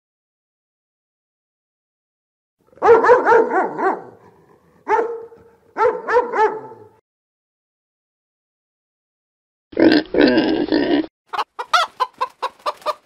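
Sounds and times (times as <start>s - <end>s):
dog barking: 2.7s - 7.0s.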